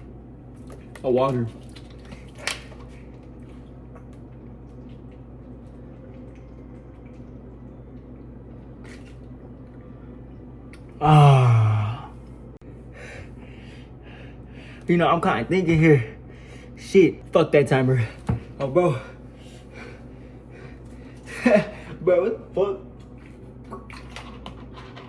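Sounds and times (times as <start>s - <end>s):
low room hum: 0.0s - 25.0s
man exhaling loudly: 11.0s - 12.2s
breathing: 12.9s - 14.8s, 16.2s - 16.8s, 19.0s - 21.9s.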